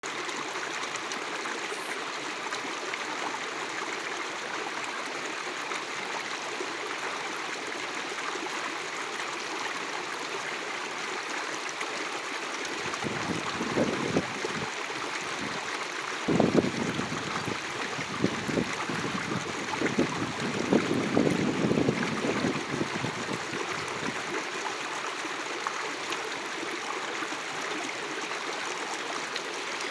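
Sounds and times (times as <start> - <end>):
wind buffeting microphone: 16.3 - 24.2.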